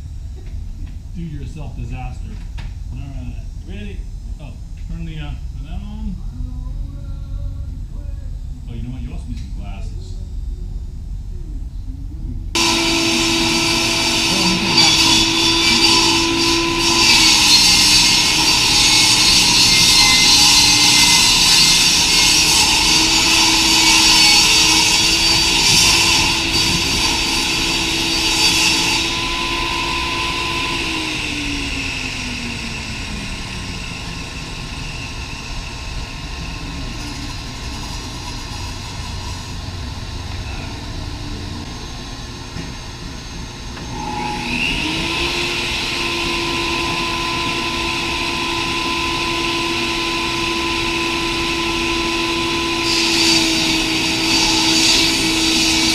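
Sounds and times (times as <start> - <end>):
saw motor hum: 12.5 - 55.9
saw motor winding down: 12.5 - 55.9
saw spinning up: 12.6 - 55.9
table saw cutting plywood: 12.6 - 55.9.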